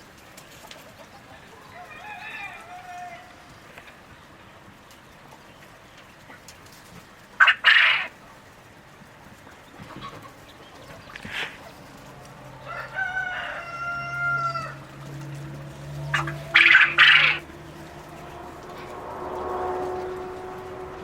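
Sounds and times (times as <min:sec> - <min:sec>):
rooster crowing: 0:01.6 - 0:03.6, 0:12.5 - 0:21.0
chicken squawk: 0:07.4 - 0:08.1, 0:12.6 - 0:14.8, 0:16.0 - 0:18.3.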